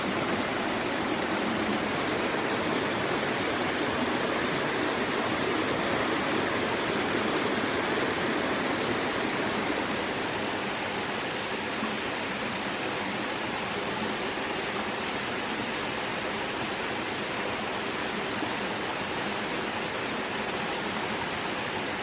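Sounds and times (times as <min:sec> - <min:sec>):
steady rushing noise: 0:00.0 - 0:15.8.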